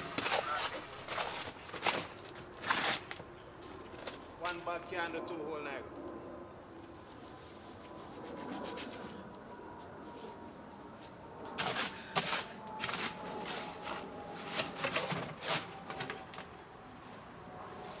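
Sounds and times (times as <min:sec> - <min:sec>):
tool scraping cement mix: 0:00.0 - 0:02.0, 0:11.6 - 0:16.1.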